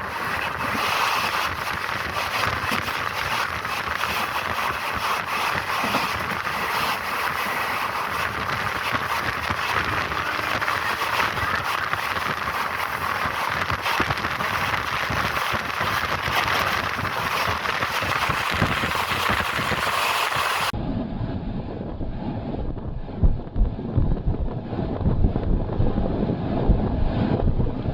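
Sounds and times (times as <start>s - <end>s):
train rushing hiss: 0.0s - 14.7s, 15.3s - 20.7s
wind buffeting microphone: 0.0s - 27.9s
low rumble: 20.7s - 27.9s.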